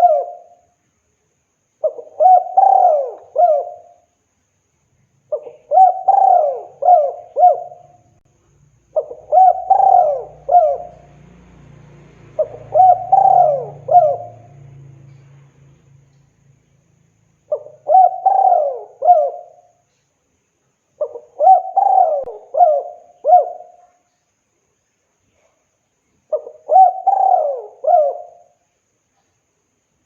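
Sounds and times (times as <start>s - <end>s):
dove cooing: 0.0s - 0.6s, 1.8s - 4.1s, 5.3s - 8.1s, 8.9s - 11.2s, 12.3s - 15.2s, 17.5s - 19.8s, 21.0s - 23.9s, 26.3s - 28.6s.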